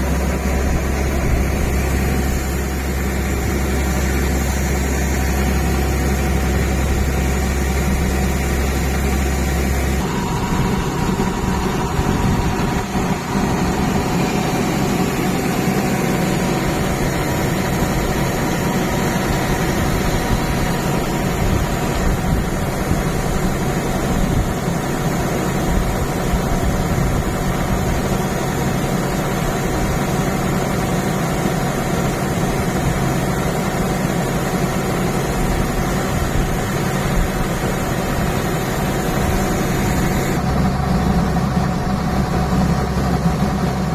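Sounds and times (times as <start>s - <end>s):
low hum: 0.0s - 23.7s, 35.4s - 43.9s
tractor diesel engine running: 0.0s - 43.9s.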